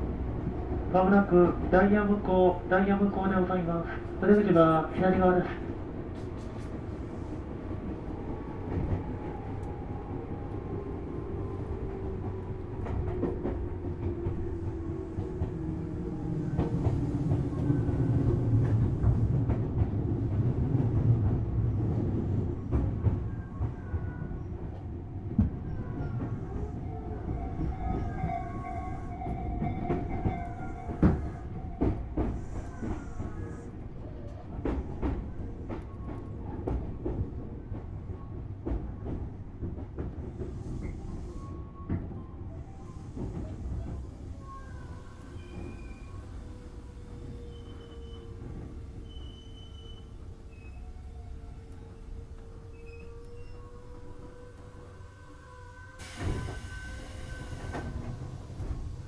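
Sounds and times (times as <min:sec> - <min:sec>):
train rumbling on rails: 0:00.0 - 0:59.0
high brake squeal: 0:42.4 - 0:59.0
rail-joint clicks: 0:42.9 - 0:59.0
train motor whine: 0:43.0 - 0:59.0.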